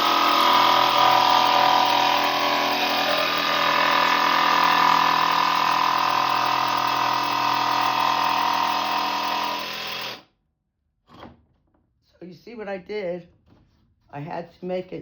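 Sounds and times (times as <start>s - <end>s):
electric jigsaw cutting: 0.0s - 10.2s.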